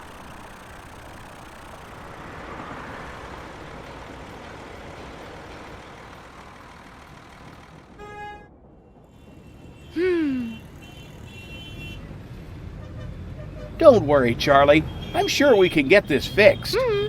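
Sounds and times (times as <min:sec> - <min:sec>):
cartoon traffic rumble: 0:00.0 - 0:11.3, 0:12.0 - 0:17.0
car horn honk: 0:08.0 - 0:08.6, 0:14.8 - 0:17.0.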